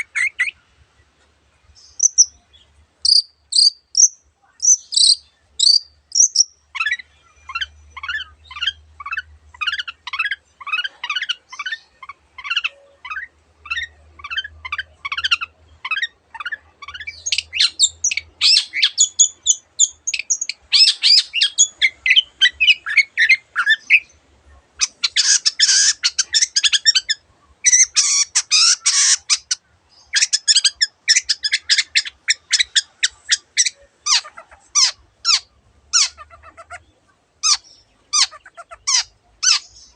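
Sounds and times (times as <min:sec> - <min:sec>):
bird singing whistled notes: 0:01.8 - 0:02.4, 0:03.0 - 0:08.8
harsh bird chattering: 0:02.0 - 0:02.4, 0:03.0 - 0:24.1, 0:24.8 - 0:39.9.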